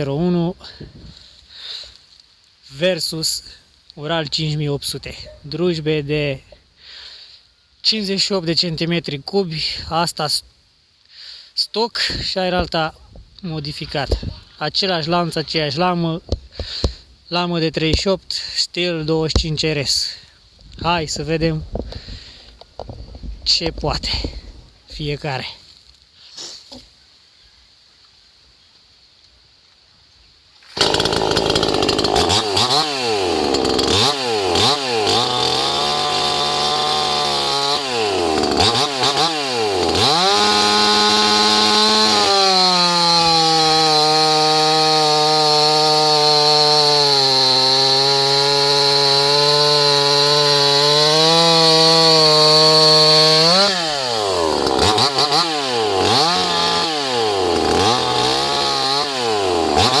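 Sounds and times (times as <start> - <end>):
chainsaw revving and cutting wood: 30.7 - 60.0.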